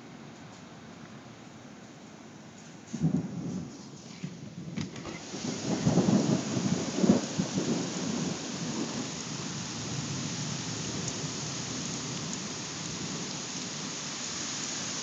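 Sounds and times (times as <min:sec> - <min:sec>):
thunder rumble: 0:03.0 - 0:13.9
heavy rain on grass and trees: 0:03.0 - 0:15.0.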